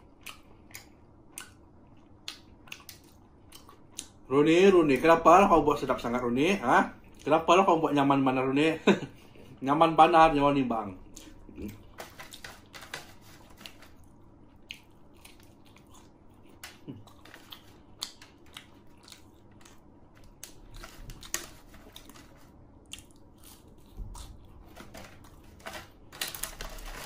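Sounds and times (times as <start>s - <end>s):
chewing crispy fried food: 0.0s - 4.2s, 11.0s - 27.0s.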